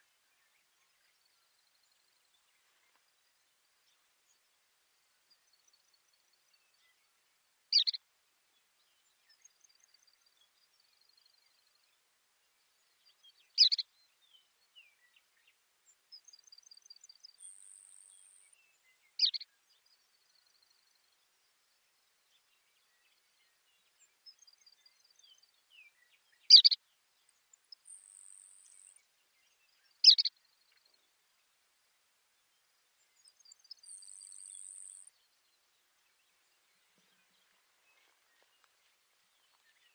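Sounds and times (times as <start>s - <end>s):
sparrow singing: 7.7s - 8.0s, 13.5s - 13.9s, 16.2s - 19.6s, 22.8s - 31.0s, 33.0s - 39.9s.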